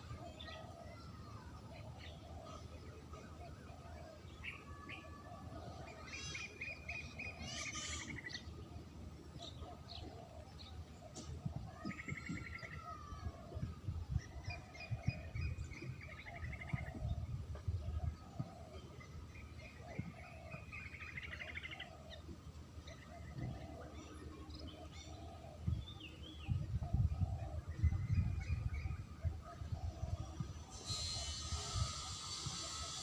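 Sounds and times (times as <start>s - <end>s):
dove cooing: 7.2s - 19.1s, 23.0s - 25.8s, 26.5s - 33.0s.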